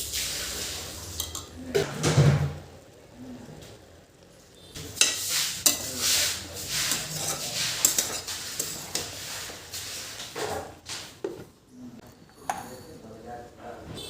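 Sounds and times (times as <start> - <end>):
food sizzling in a pan: 0.0 - 11.4
spatula scraping a pan: 4.8 - 11.4
spatula clinking against pan: 5.0 - 5.9, 6.9 - 9.2.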